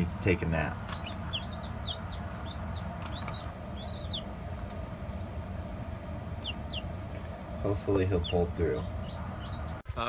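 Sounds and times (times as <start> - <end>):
baby chicks peeping: 0.0 - 9.9
steady low hum: 0.0 - 10.0.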